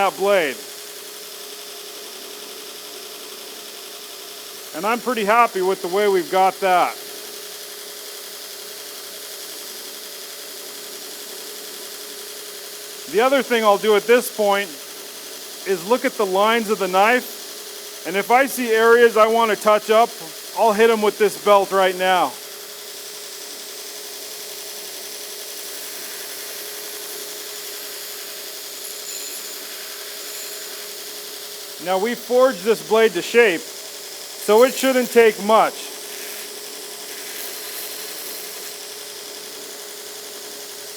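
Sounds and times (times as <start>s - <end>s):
belt grinder motor hum: 11.0s - 40.9s
moving belt hiss: 31.8s - 39.4s.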